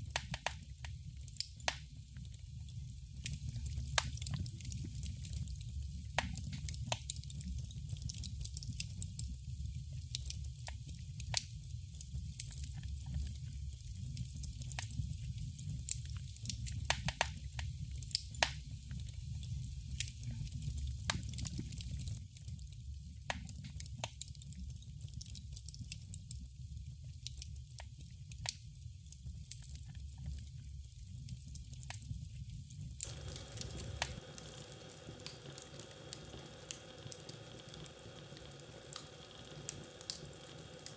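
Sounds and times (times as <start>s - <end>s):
wood fire crackling: 0.0s - 40.9s
steady hiss: 33.0s - 40.9s.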